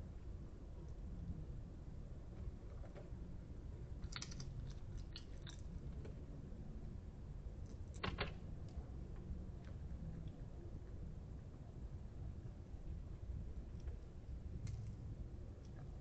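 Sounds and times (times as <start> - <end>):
low background hum: 0.0 - 16.0
animal crunching hard food: 4.0 - 6.0.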